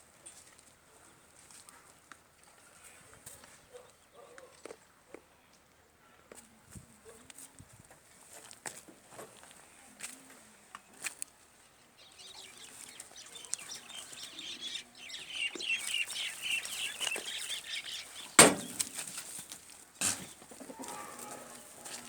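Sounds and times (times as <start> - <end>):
birds chattering: 12.0 - 19.0
sharp knocks: 18.4 - 18.8.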